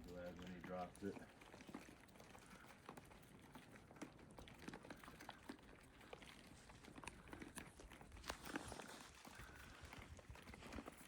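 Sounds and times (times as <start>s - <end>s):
deer clicks and rustles: 0.0s - 11.0s.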